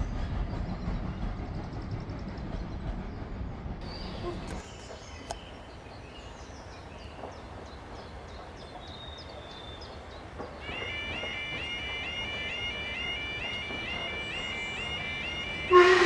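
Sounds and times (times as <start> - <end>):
small birds chirping: 3.8 - 15.8
faint open-air background noise: 3.8 - 16.0
high-pitched stepping tune: 10.6 - 16.0.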